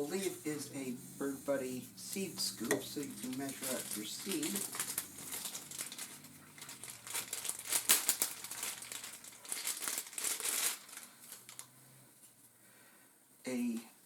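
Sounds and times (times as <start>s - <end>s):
packaging crinkling: 2.8s - 11.7s.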